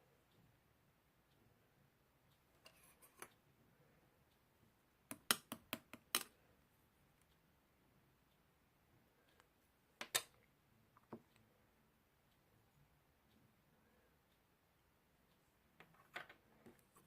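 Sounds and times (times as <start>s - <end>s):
soft ticks: 2.2s - 3.5s, 7.1s - 7.6s, 8.2s - 9.7s, 10.3s - 17.0s.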